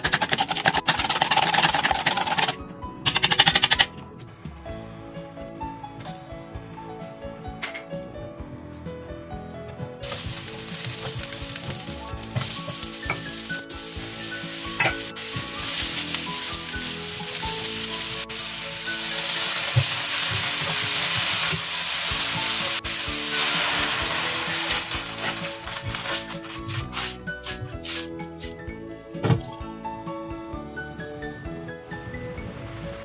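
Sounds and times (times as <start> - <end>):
water poured into hot pan: 10.0 - 26.2
oil sizzling in a pan: 10.0 - 26.3.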